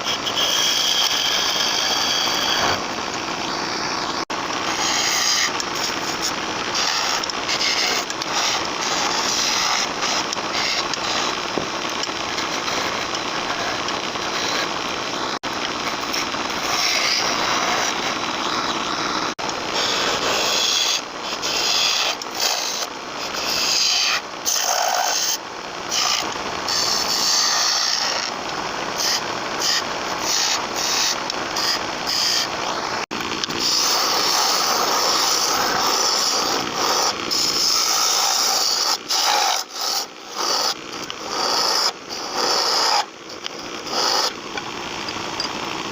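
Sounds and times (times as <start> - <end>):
wood lathe cutting wood: 0.0 - 45.9.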